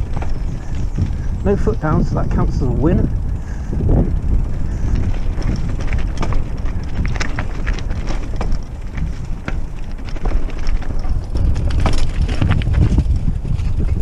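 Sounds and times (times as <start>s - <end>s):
mountain bike rattling: 0.0s - 14.0s
wind on microphone: 0.0s - 14.0s.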